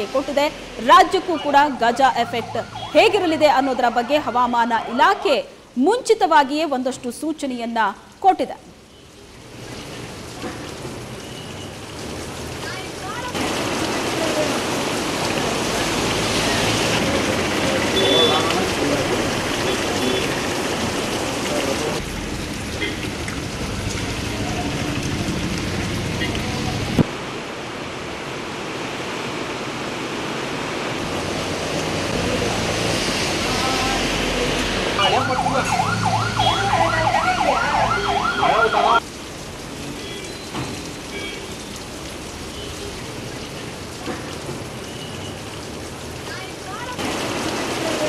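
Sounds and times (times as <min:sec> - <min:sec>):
heavy rain: 0:00.0 - 0:07.1, 0:07.9 - 0:48.0
emergency siren wailing: 0:01.1 - 0:05.5, 0:35.0 - 0:39.0.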